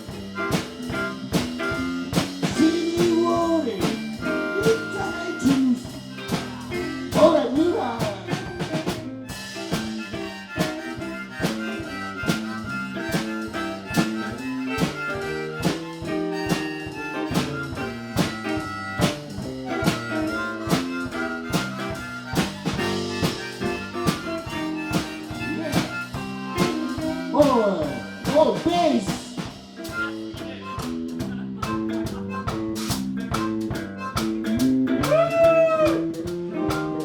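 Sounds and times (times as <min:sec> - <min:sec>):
lead instrument long notes: 0:00.0 - 0:30.5
blues band playing: 0:00.0 - 0:37.0
drum kit beat: 0:00.0 - 0:37.0
walking bass line: 0:00.0 - 0:37.0.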